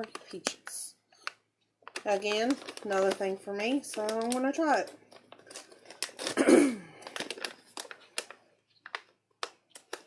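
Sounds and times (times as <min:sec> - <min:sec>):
plastic snack bag crinkling: 0:00.0 - 0:10.0
person sighing: 0:06.4 - 0:07.2.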